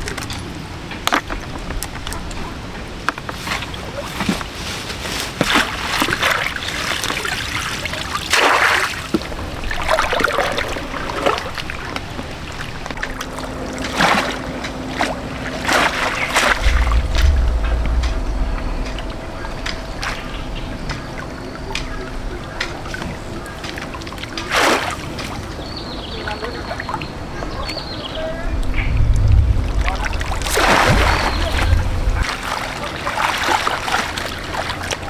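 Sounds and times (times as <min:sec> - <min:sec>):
water splashing and sloshing: 0:08.4 - 0:25.5, 0:28.6 - 0:35.0
low rumble: 0:12.9 - 0:24.3, 0:28.1 - 0:32.6.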